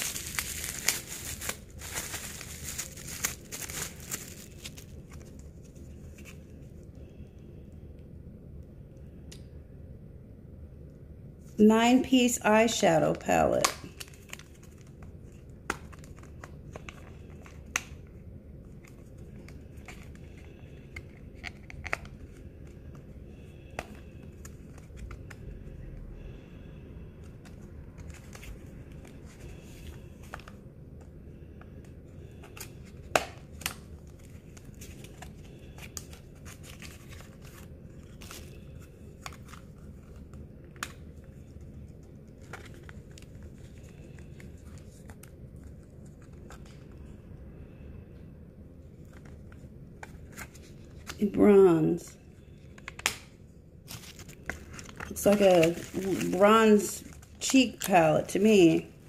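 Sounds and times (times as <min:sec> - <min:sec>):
cellophane crinkling: 0:00.0 - 0:06.4, 0:13.8 - 0:18.0, 0:32.4 - 0:47.0, 0:53.8 - 0:58.5
low room hum: 0:00.0 - 0:59.0.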